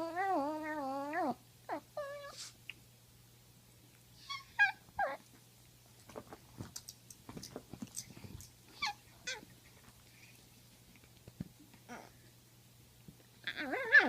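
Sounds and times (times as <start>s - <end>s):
dog whining: 0.0s - 2.5s, 4.2s - 5.3s, 8.7s - 9.5s, 11.9s - 12.2s, 13.4s - 14.0s.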